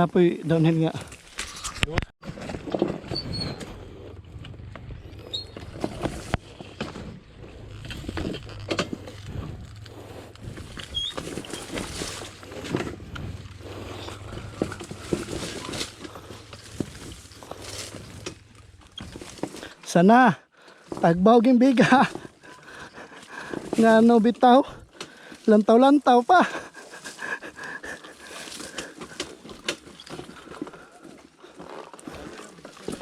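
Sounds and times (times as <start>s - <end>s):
bike knocking and rattling: 0.5s - 19.9s, 20.7s - 33.0s
motorcycle engine running low: 2.5s - 19.6s.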